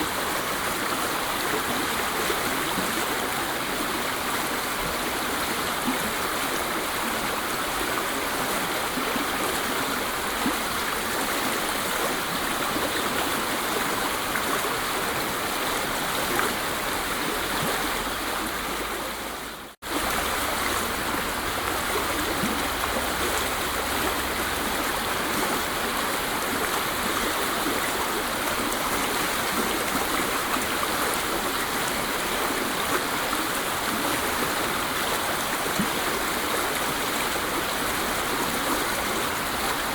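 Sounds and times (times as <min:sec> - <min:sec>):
waterfall rushing water: 0:00.0 - 0:39.9.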